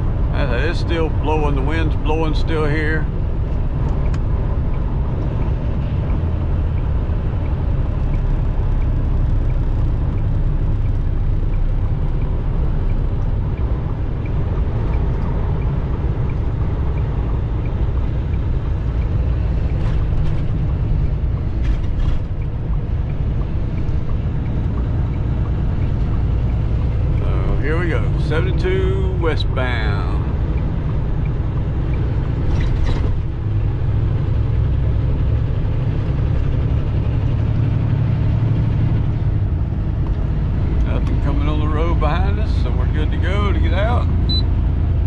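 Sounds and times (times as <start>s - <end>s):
road noise: 0.0s - 45.0s
truck engine rumble: 0.0s - 45.0s.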